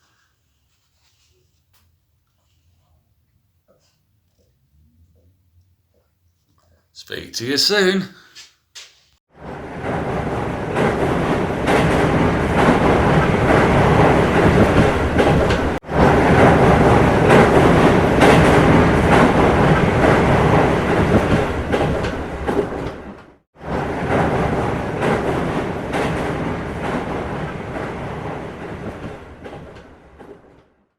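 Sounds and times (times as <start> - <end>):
train wheels clattering on rails: 9.6 - 30.8.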